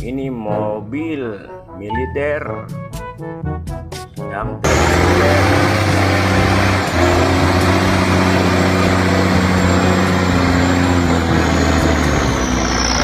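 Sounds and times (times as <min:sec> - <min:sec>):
vehicle engine rumble: 0:04.6 - 0:13.0.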